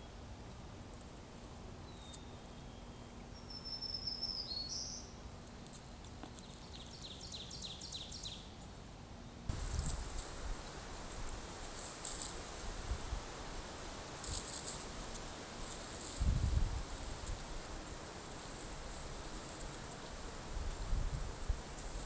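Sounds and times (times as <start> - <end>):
songbird singing: 1.6 - 12.5
rustling and scratching: 9.5 - 22.0.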